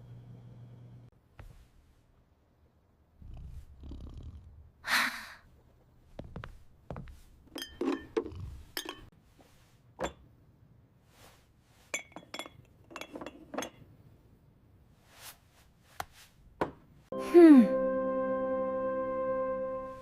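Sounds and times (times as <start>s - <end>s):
glass jars clinking: 7.5s - 9.1s, 11.9s - 13.8s.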